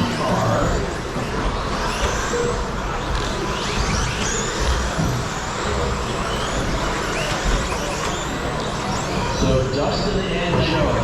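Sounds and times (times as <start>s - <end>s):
rc truck motors whining: 0.0s - 11.0s.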